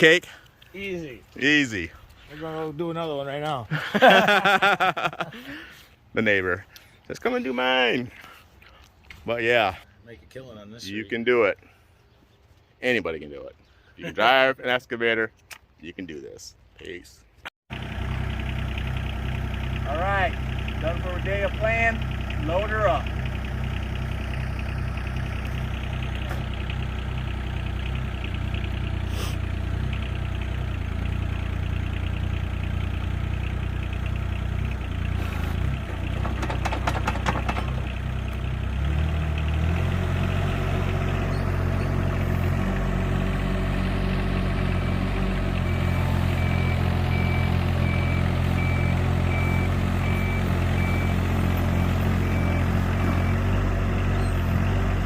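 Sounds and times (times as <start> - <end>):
excavator engine idling and revving: 17.7 - 55.0
clattering: 35.5 - 38.0
high repeating alarm beep: 51.8 - 53.4.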